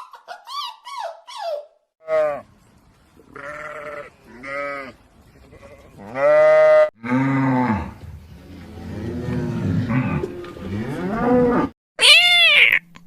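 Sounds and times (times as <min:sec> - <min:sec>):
sheep or goat bleating: 0:03.3 - 0:06.9.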